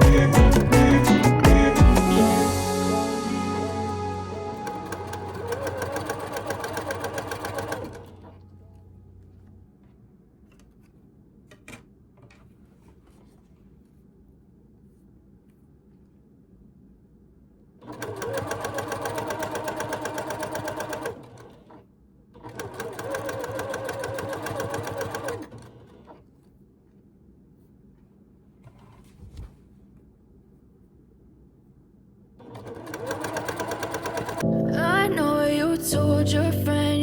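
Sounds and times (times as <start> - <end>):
sewing machine stitching: 4.5 - 8.4, 17.8 - 21.8, 22.4 - 26.2, 32.4 - 34.4.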